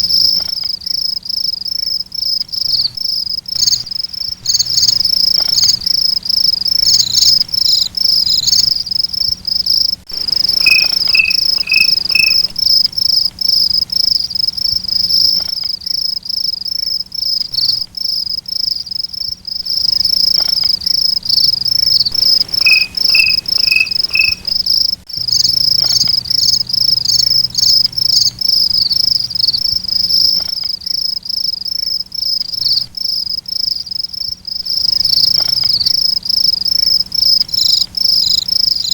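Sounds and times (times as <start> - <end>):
crickets trilling: 0.0 - 38.9
lower chirp: 10.1 - 13.2, 19.7 - 29.6.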